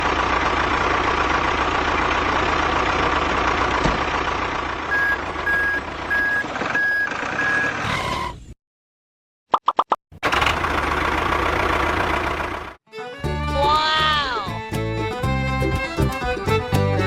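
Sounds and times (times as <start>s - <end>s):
vehicle engine running: 0.0s - 7.4s, 10.2s - 13.5s
reversing alarm beeps: 4.9s - 7.8s.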